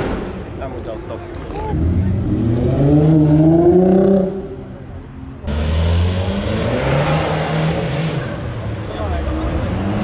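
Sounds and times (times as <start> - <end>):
car engine revving: 1.7 - 4.6, 5.4 - 10.0.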